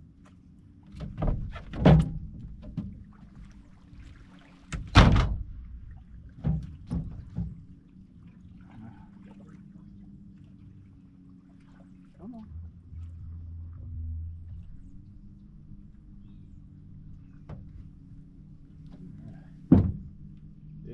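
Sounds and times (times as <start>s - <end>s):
hollow knocks against boat hull: 0.9s - 3.6s, 4.7s - 7.7s, 17.4s - 18.0s, 18.8s - 20.5s.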